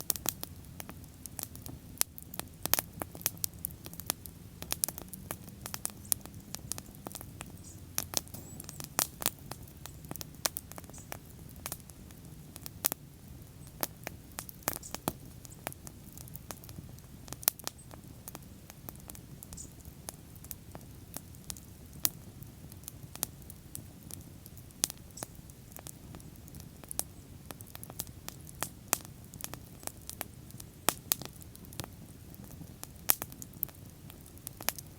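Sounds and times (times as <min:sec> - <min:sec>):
bonfire crackling and popping: 0:00.0 - 0:34.9
low rush of flame: 0:00.1 - 0:12.7.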